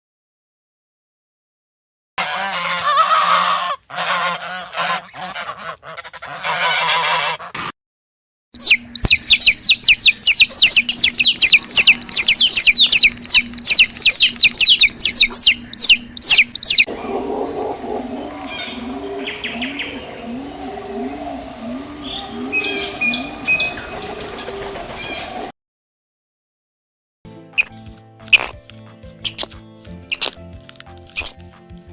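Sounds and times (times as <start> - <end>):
fowl honking: 2.2 - 7.6
low quiet fowl calls: 2.2 - 7.7
rapid high chirps: 8.6 - 16.9.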